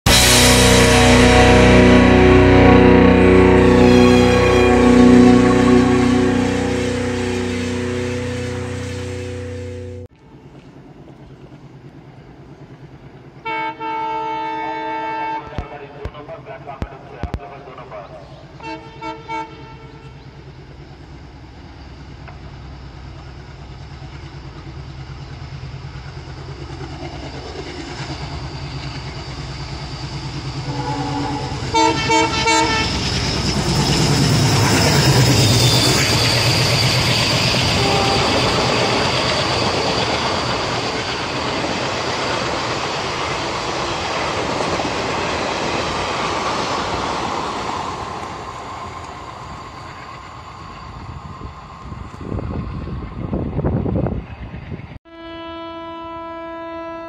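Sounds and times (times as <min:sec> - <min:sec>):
train horn blasts: 0:00.1 - 0:10.1, 0:13.4 - 0:15.7, 0:18.6 - 0:20.2, 0:30.5 - 0:40.8, 0:55.1 - 0:57.0
diesel locomotive engine chugging: 0:00.1 - 0:55.0
train coaches clickety-clack: 0:31.7 - 0:55.0.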